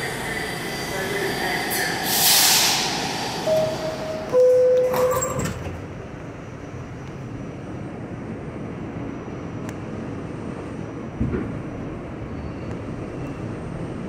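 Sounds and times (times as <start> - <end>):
air hiss: 0.0 - 4.3
subway car hum: 0.0 - 14.0
sliding doors closing: 1.8 - 6.0
two-tone descending door chime: 3.5 - 5.6.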